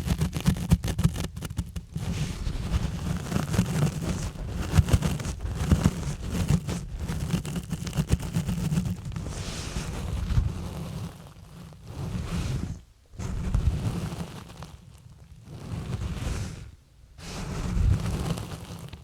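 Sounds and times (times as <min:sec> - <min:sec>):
gloves scratching on microphone: 0:00.0 - 0:19.0.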